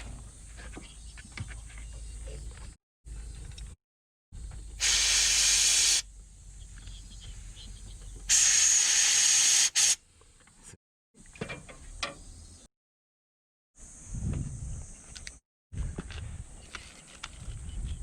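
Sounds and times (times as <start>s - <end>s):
pressurised spray hissing: 4.8s - 6.1s, 8.3s - 10.0s.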